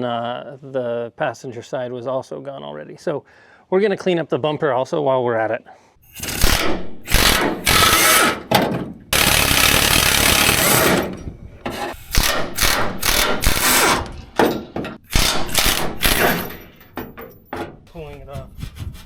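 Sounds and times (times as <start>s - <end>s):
power tool bursts: 6.1s - 8.5s, 9.1s - 11.1s, 12.0s - 14.1s, 15.0s - 16.7s.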